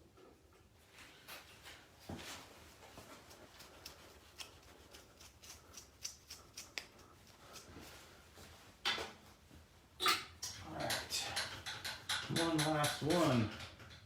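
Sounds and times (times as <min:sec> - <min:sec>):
hand tools scraping steel plate: 0:10.0 - 0:14.0
metal clicks of hand tools: 0:10.0 - 0:14.0.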